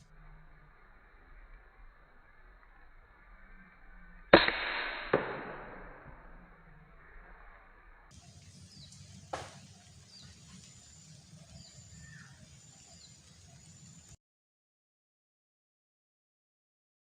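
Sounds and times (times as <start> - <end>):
faint high whine: 0.0 - 14.2
low steady rumble: 0.0 - 14.2
sharp crack: 4.3 - 6.6, 8.9 - 9.9
small birds chirping: 8.1 - 14.2.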